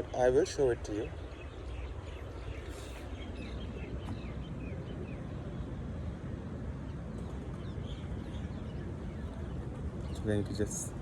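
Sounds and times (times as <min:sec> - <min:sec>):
small birds chirping: 0:06.9 - 0:11.0.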